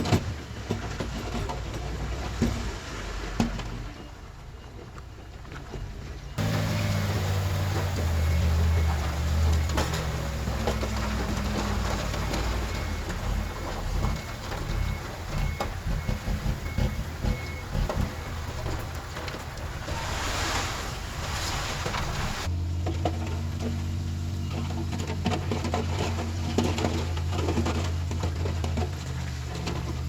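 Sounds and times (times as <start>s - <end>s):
backup alarm beeping: 6.4s - 20.2s
diesel engine running: 6.4s - 30.0s.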